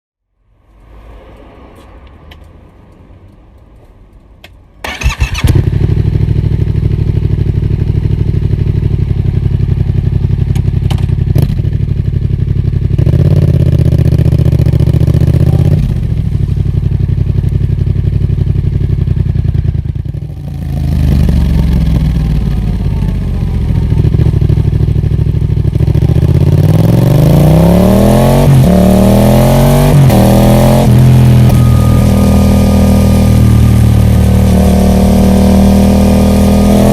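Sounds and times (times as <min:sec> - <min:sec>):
motorcycle engine idling: 0:04.8 - 0:26.7
motorcycle engine revving: 0:04.8 - 0:36.9.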